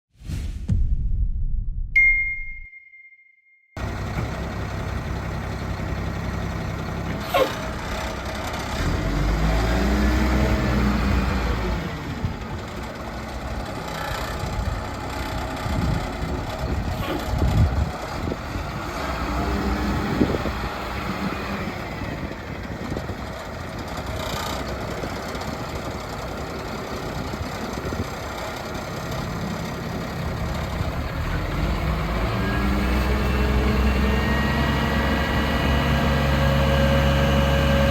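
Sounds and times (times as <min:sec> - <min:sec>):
diesel truck engine idling: 0:03.8 - 0:09.6, 0:10.4 - 0:36.4.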